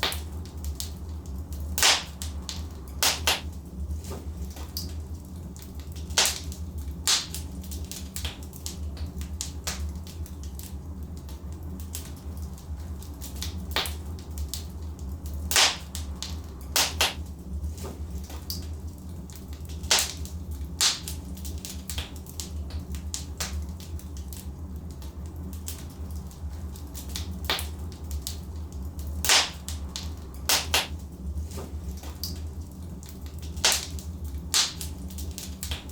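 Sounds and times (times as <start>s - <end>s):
burning logs popping: 0.0s - 35.9s
fire crackling: 0.0s - 35.9s
low rumble of flames: 0.0s - 35.9s.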